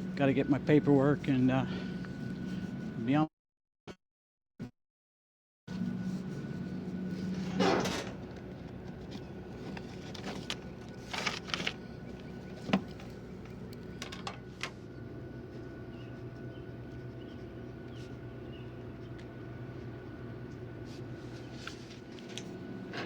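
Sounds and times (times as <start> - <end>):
vehicle engine hum: 5.7 - 23.0.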